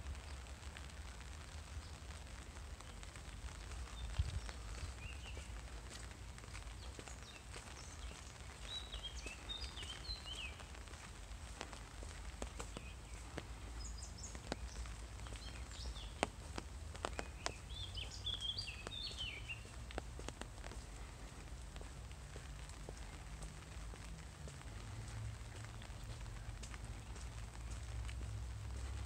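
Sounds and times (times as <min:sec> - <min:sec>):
songbird warbling chirps: 0:06.8 - 0:10.7, 0:17.0 - 0:19.8.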